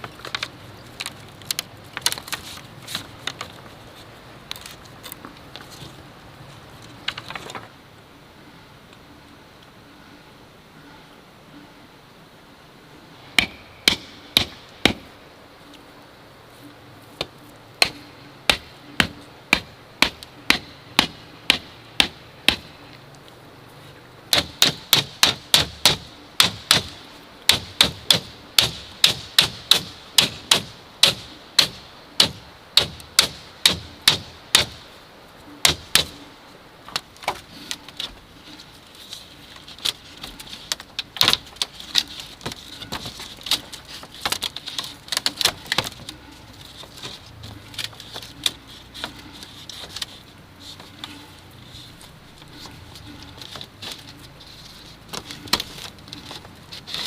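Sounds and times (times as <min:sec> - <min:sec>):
hand tool striking bamboo: 0:13.4 - 0:15.1, 0:17.2 - 0:22.7, 0:24.3 - 0:34.8, 0:35.6 - 0:36.2.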